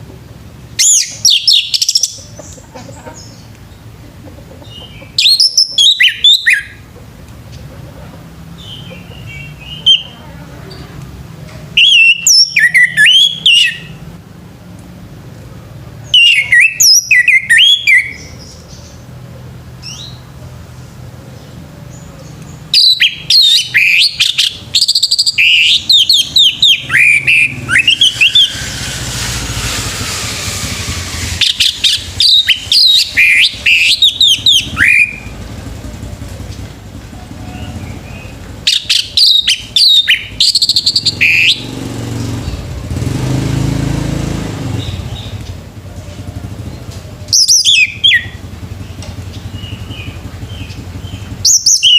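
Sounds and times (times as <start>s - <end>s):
thrush singing: 22.6s - 51.9s.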